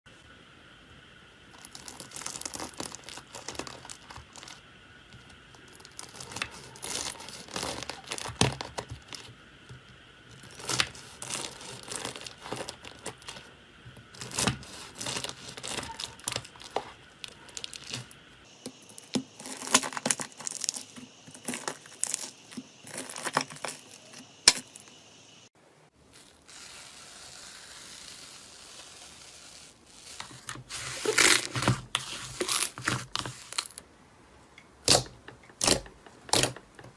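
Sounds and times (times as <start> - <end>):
faint hiss: 0.1 - 34.8.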